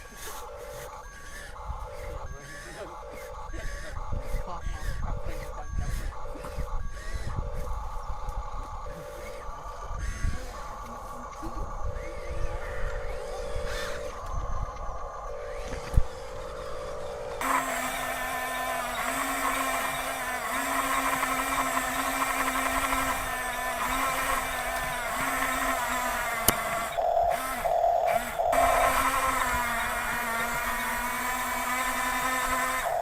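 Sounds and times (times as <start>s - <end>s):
toy electric motors whining: 0.0s - 33.0s
sharp click: 26.4s - 27.0s.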